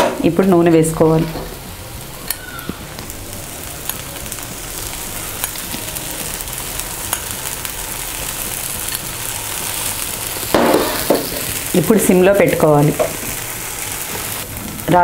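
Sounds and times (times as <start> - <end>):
batter sizzling on a hot griddle: 0.2 - 15.0.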